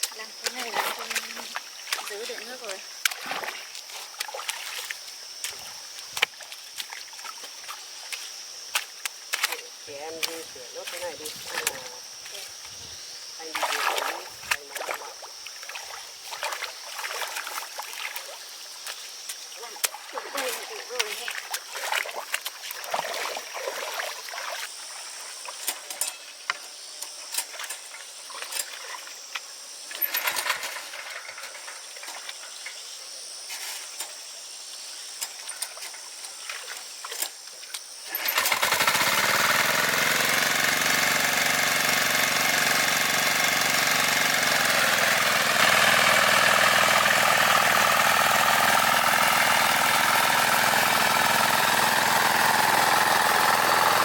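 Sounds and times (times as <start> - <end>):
knocks and scrapes of manual work: 30.0 - 32.8
farm machine engine running: 38.2 - 54.0.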